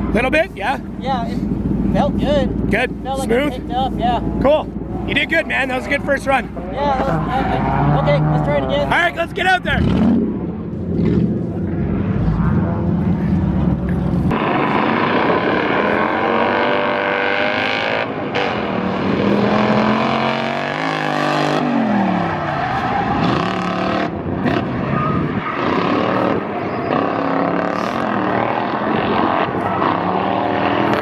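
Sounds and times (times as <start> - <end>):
car engine revving: 0.0 - 31.0
tire squeal and skidding: 6.9 - 10.1, 14.3 - 31.0.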